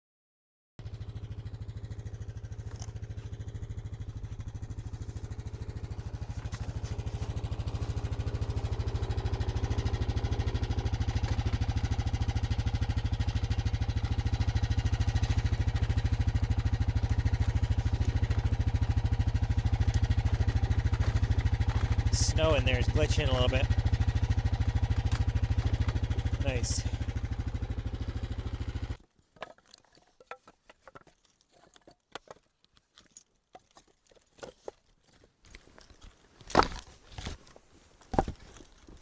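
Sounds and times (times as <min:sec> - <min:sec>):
small vehicle engine running: 0:00.8 - 0:29.0.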